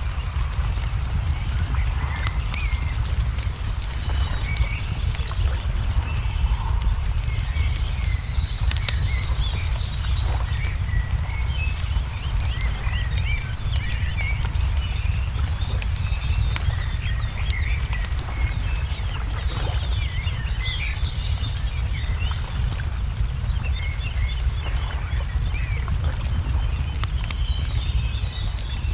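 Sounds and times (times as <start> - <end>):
low rumble: 0.0 - 28.9
small birds chirping: 0.0 - 28.9
wood fire crackling and popping: 0.0 - 28.9.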